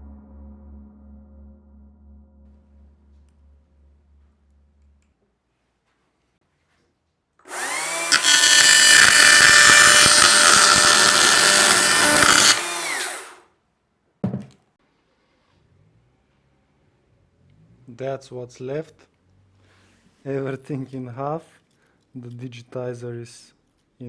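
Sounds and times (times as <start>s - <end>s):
battery chainsaw cutting: 7.5s - 13.4s.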